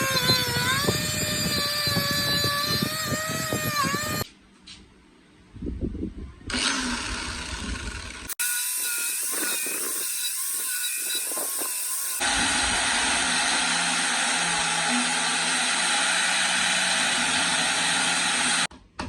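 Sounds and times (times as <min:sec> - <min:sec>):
motor-driven tool whining: 0:00.0 - 0:04.3, 0:06.5 - 0:18.7.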